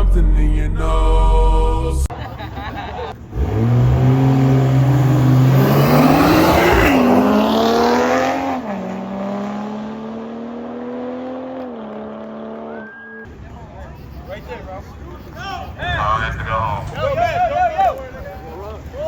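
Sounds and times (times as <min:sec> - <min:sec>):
tyre and exhaust noise: 0:02.1 - 0:19.0
car engine revving: 0:02.8 - 0:13.0.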